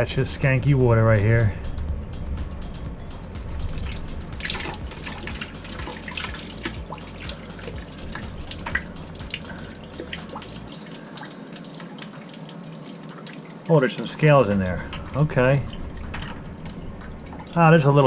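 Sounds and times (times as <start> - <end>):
low hum: 0.0 - 13.3, 14.2 - 18.0
water dripping into container: 3.4 - 17.6.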